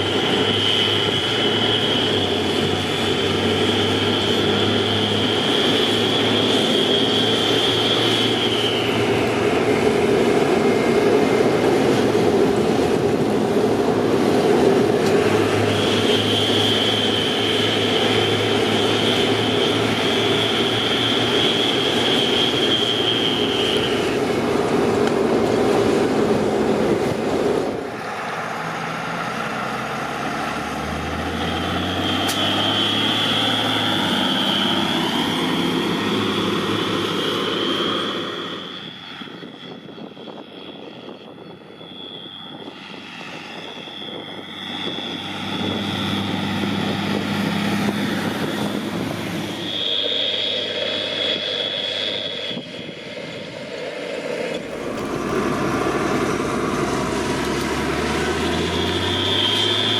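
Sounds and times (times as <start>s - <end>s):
turbo whistle: 0.0s - 9.9s, 15.5s - 24.5s, 31.2s - 39.9s, 47.8s - 53.6s, 54.5s - 59.9s
tractor diesel engine under load: 0.0s - 59.9s.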